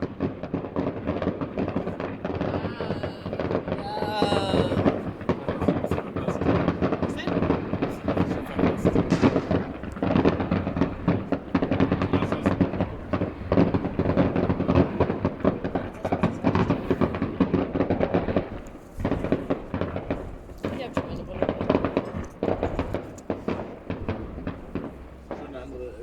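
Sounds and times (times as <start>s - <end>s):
distant fireworks bangs and crackles: 0.0s - 26.0s.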